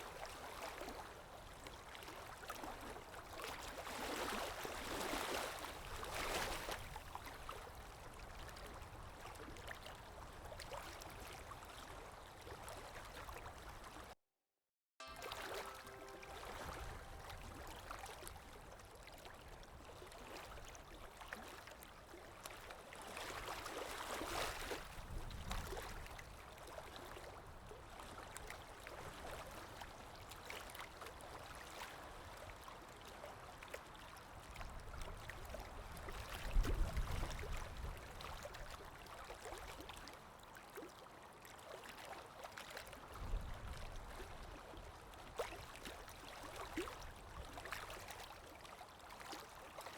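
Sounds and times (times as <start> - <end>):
river water flowing: 15.0 - 24.8, 45.6 - 49.9.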